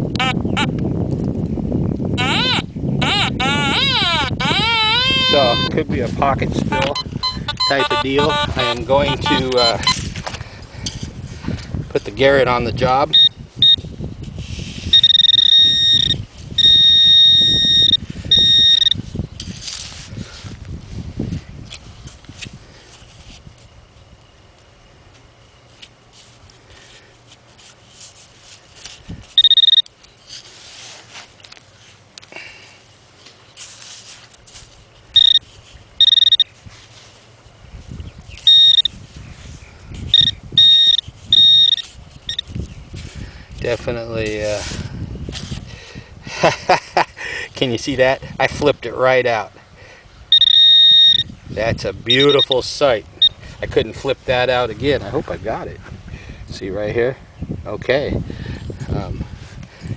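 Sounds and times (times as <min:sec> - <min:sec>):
high-pitched metal detector tone: 0:02.2 - 0:05.9, 0:06.7 - 0:10.0, 0:13.1 - 0:13.8, 0:14.9 - 0:19.1, 0:29.4 - 0:29.9, 0:35.1 - 0:36.5, 0:38.4 - 0:39.0, 0:40.1 - 0:42.5, 0:50.3 - 0:51.3, 0:52.1 - 0:52.6
high beeps: 0:06.7 - 0:10.0, 0:13.1 - 0:13.8, 0:14.9 - 0:19.0, 0:29.4 - 0:29.9, 0:35.2 - 0:35.4, 0:36.0 - 0:36.5, 0:38.5 - 0:38.9, 0:40.1 - 0:42.4, 0:50.3 - 0:51.3, 0:52.1 - 0:52.6
scraping and rustling in sand: 0:14.2 - 0:15.0, 0:19.1 - 0:23.9, 0:25.1 - 0:29.4, 0:30.1 - 0:40.2, 0:41.0 - 0:45.8
scraping and handling noise: 0:19.4 - 0:20.6, 0:25.1 - 0:32.3, 0:33.0 - 0:37.4.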